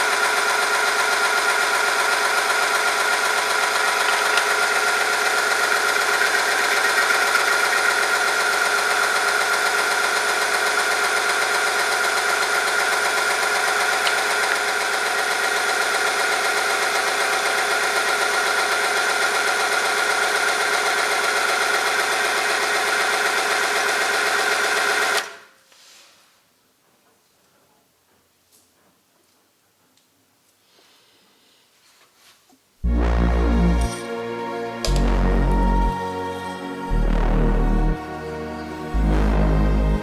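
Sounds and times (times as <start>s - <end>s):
machine motor humming with whine: 32.8s - 40.0s.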